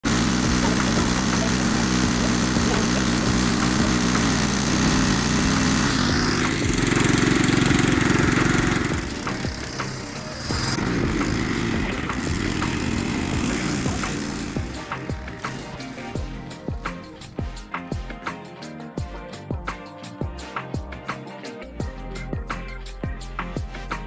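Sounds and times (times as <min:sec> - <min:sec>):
small engine running: 0:00.0 - 0:17.6.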